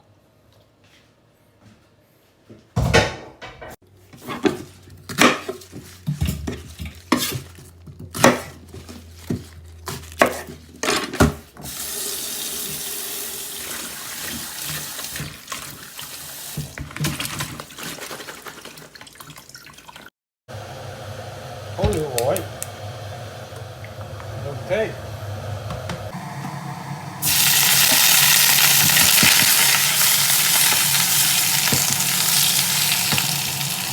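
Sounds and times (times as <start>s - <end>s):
tap running: 21.2s - 33.9s.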